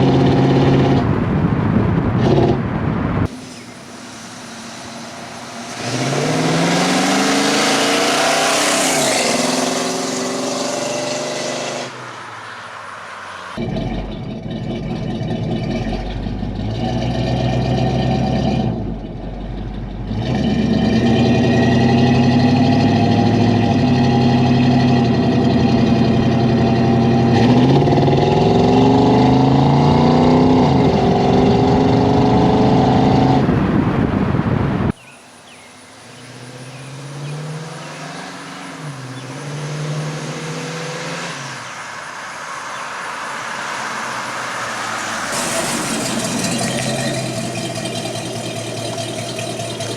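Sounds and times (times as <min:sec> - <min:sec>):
exhaust note rising and falling: 0:00.0 - 0:12.3, 0:13.5 - 0:35.0
car engine accelerating: 0:00.0 - 0:35.0, 0:36.1 - 0:49.9.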